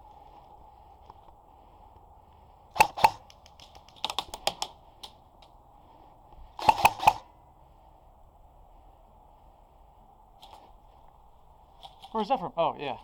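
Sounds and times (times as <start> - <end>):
airsoft gun shots: 2.8 - 3.4, 6.6 - 7.3.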